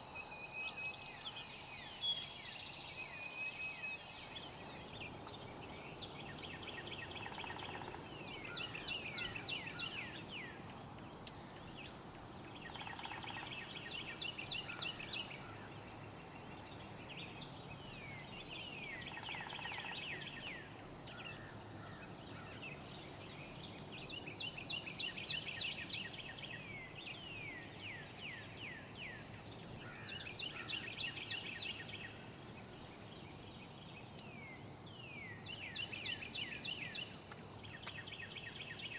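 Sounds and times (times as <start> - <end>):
high-pitched insect trill: 0.1 - 38.9
songbird singing: 0.1 - 38.9.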